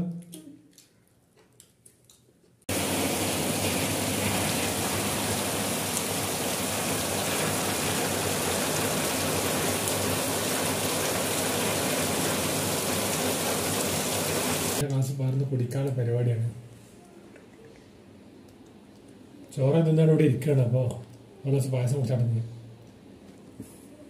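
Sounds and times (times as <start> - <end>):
rain falling into puddles: 2.7 - 14.8.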